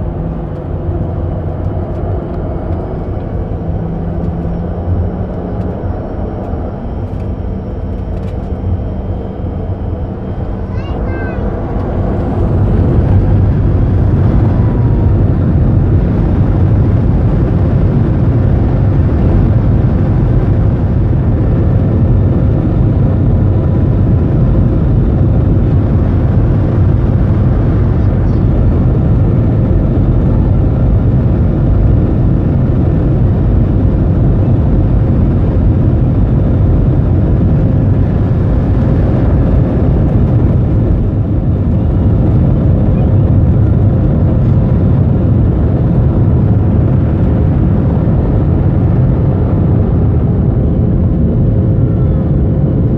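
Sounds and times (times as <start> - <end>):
jet engines roaring: 0.0 - 52.9.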